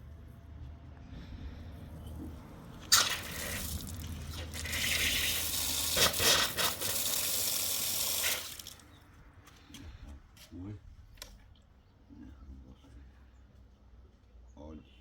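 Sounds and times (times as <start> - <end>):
water pouring: 2.8 - 8.8.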